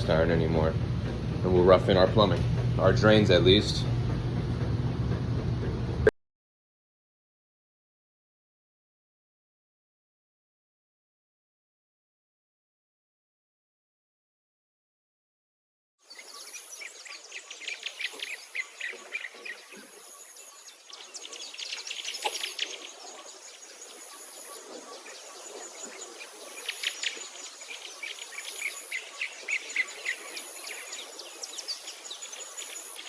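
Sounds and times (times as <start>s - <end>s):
birds chirping: 0.0s - 4.6s, 16.1s - 33.0s.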